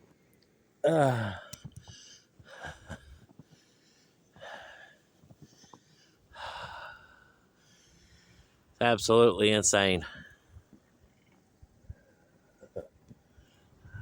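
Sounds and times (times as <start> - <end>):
man breathing hard: 1.0 - 8.6.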